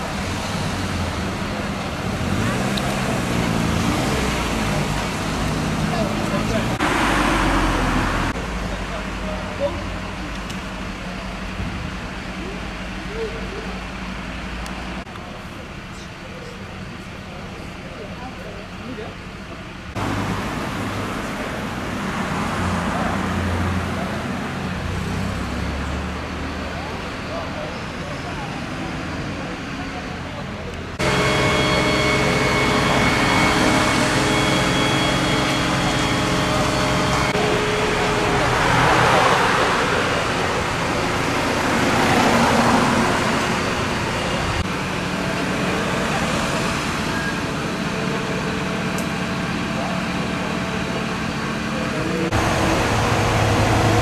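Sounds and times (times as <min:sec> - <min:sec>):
large vehicle engine running: 0:00.0 - 0:54.0
street noise: 0:00.0 - 0:54.0
low engine hum: 0:29.6 - 0:54.0.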